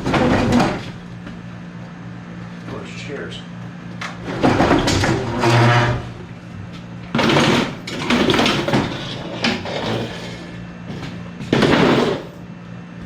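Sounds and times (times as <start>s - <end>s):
objects clattering and scraping: 0.0s - 1.0s, 4.0s - 12.4s
steady low hum: 0.0s - 13.0s.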